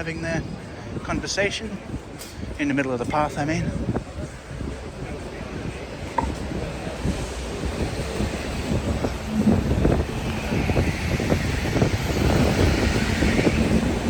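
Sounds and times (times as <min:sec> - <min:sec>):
vehicles passing: 0:04.2 - 0:14.0
scattered knocks: 0:06.2 - 0:06.5.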